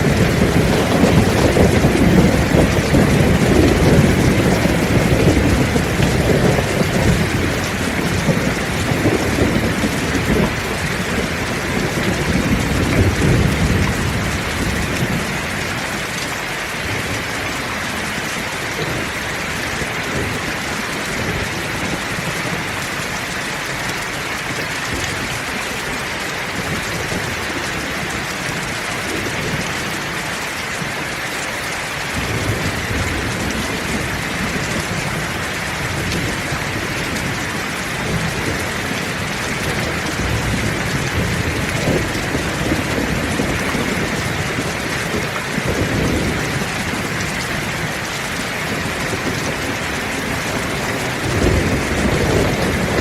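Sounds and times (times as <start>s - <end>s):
low rolling thunder: 0.0s - 23.1s, 32.1s - 53.0s
heavy rain falling: 0.0s - 53.0s.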